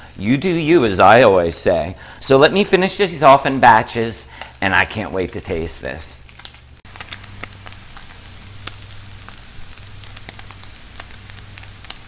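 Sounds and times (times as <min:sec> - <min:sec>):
chicken sizzling in oil: 0:06.2 - 0:12.0.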